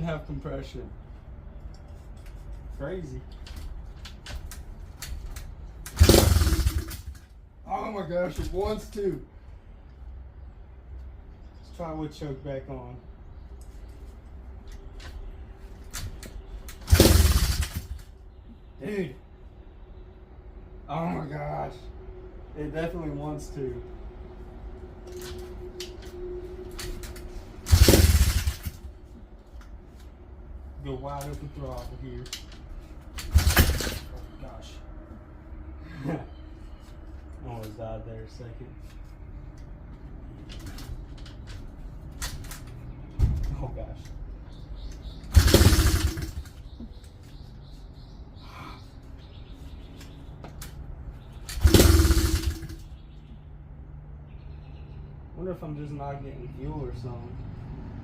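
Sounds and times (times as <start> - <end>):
small motorbike engine almost starting: 5.9 - 7.2, 16.7 - 18.0, 27.6 - 28.8, 33.2 - 34.1, 45.3 - 46.6, 51.5 - 52.8.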